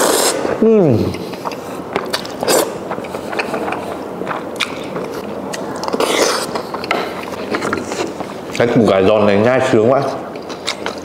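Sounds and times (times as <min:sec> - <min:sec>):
crunchy chewing: 0:01.0 - 0:08.9, 0:09.9 - 0:11.0.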